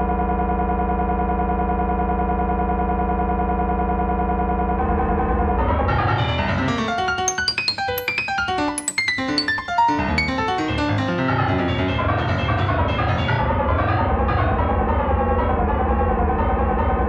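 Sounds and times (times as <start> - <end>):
piano-like tones: 6.1 - 14.6.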